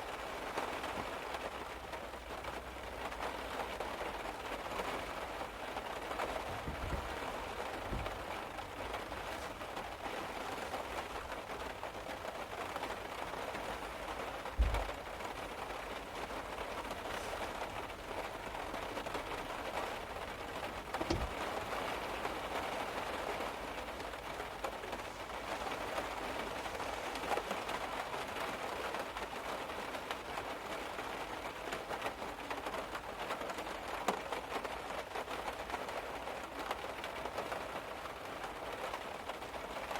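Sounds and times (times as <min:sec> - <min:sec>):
rain on a car roof: 0:00.0 - 0:39.9
soft low thumps: 0:06.5 - 0:07.2, 0:07.8 - 0:08.4, 0:21.0 - 0:21.6.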